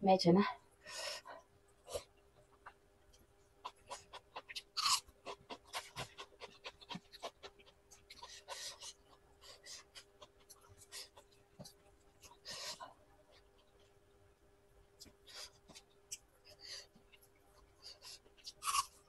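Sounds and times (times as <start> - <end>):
chewing and lip smacking: 2.0 - 13.9.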